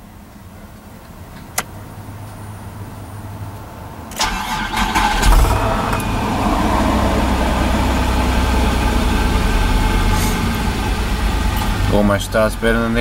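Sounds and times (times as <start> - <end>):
car engine starting and idling: 4.0 - 13.0.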